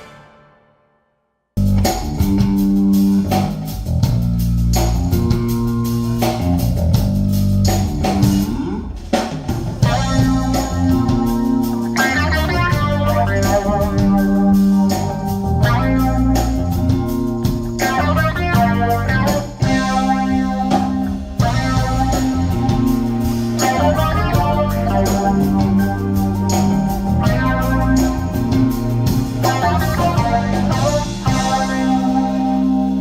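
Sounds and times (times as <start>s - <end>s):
bass guitar: 1.6s - 33.0s
drums: 1.6s - 33.0s
electric guitar: 9.8s - 33.0s.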